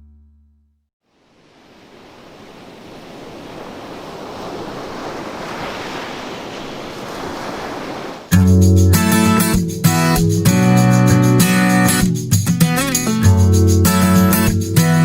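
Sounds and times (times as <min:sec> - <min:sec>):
waterfall roaring: 0:01.1 - 0:08.4.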